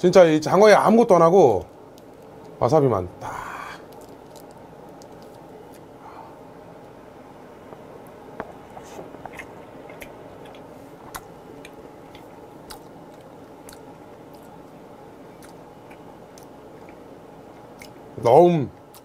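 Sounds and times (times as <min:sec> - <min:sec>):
steady background hiss: 0:00.0 - 0:19.0
person chewing: 0:03.5 - 0:06.0, 0:08.5 - 0:18.0.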